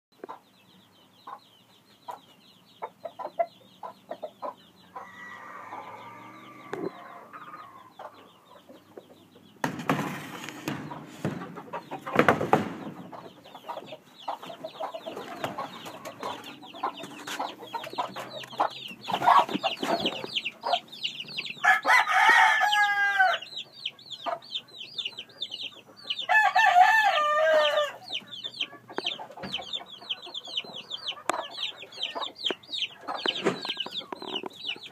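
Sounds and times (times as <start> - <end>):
roosters clucking: 0.2 - 34.9
rooster crowing: 4.9 - 7.9, 21.6 - 23.5, 26.3 - 28.0.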